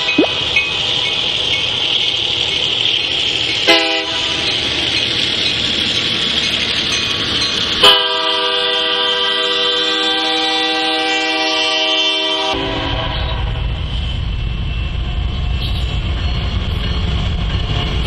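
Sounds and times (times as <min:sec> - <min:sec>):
train wheels rumbling on rails: 0:00.0 - 0:18.0
locomotive horn blast: 0:03.7 - 0:04.3, 0:07.8 - 0:13.7.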